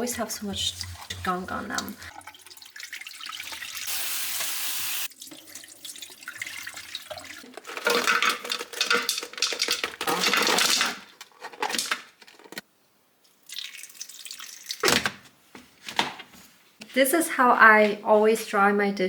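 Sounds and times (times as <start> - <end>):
water sloshing and dripping: 0.2 - 9.0.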